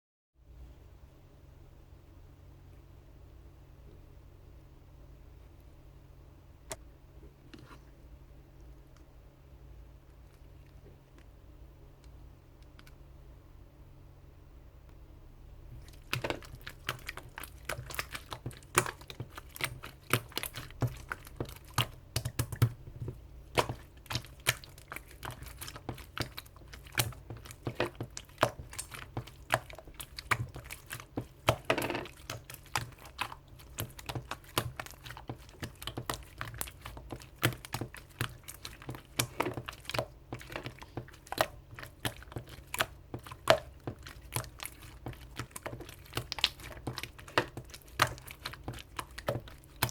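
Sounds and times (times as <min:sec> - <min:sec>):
hands squeezing slime: 0:15.7 - 0:49.9.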